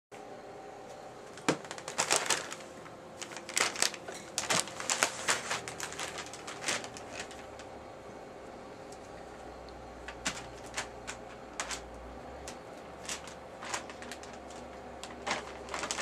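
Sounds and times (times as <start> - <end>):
plastic bag crinkling: 1.3 - 7.7, 10.1 - 16.0.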